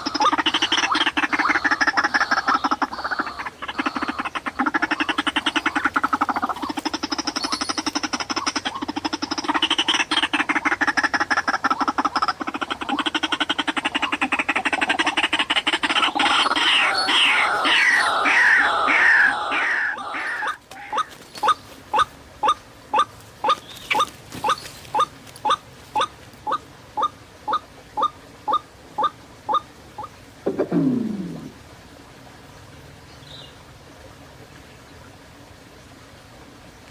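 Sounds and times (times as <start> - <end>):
waterhen croaking calls: 0.0 - 31.6
short rising bird calls: 16.1 - 22.6.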